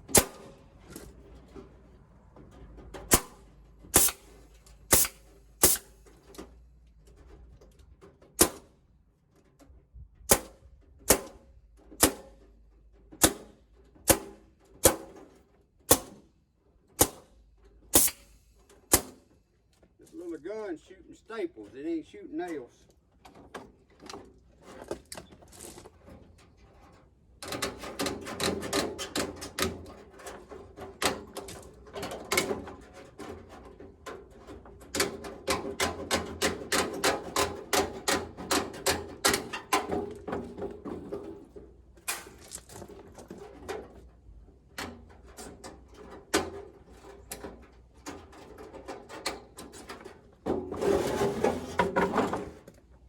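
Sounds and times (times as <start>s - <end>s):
staple gun firing: 4.9s - 5.9s
scraping rustle: 19.9s - 29.0s, 39.5s - 53.0s.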